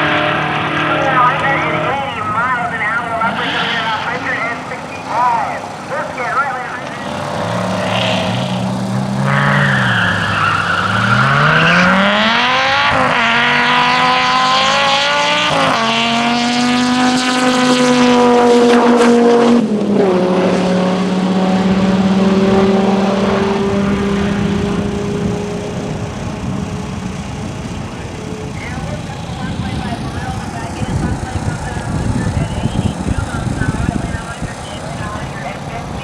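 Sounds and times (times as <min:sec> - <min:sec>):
race car engine accelerating: 0:00.0 - 0:36.0
tyre squeal: 0:07.0 - 0:12.4.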